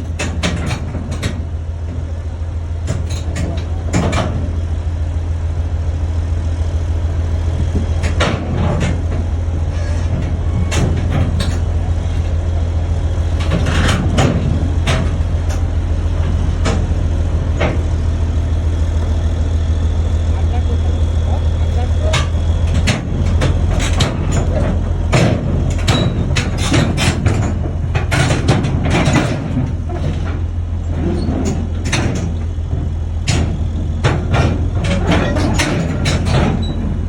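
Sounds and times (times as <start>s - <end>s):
heavy diesel engine running: 0.0s - 37.0s
sharp metallic knocks: 22.1s - 30.4s.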